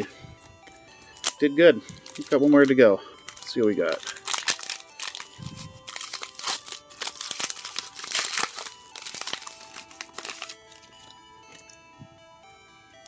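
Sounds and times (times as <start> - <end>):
faint background music: 0.0 - 13.0
foil wrapper crinkling: 1.0 - 1.4, 2.0 - 11.1.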